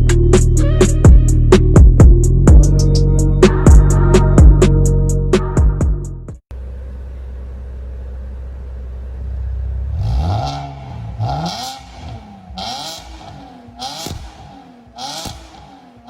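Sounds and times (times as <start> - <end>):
car exhaust idling and revving: 6.4 - 16.0.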